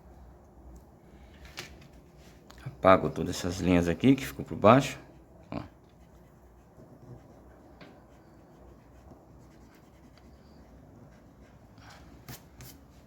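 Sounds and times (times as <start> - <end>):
eraser rubbing on paper: 5.9 - 13.0.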